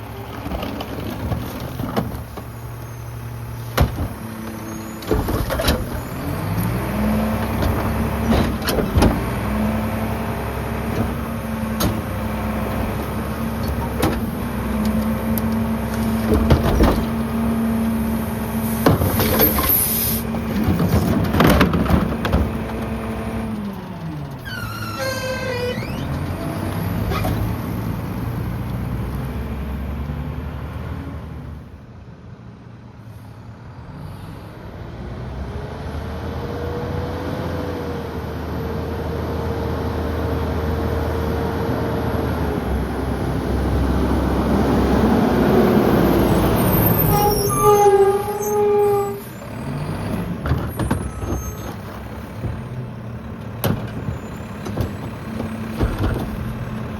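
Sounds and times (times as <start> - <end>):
diesel engine rumble: 0.0 - 56.9
high squeals: 4.6 - 5.1, 24.4 - 26.2, 46.3 - 49.9, 50.9 - 51.9
hydraulic whine: 23.9 - 27.5.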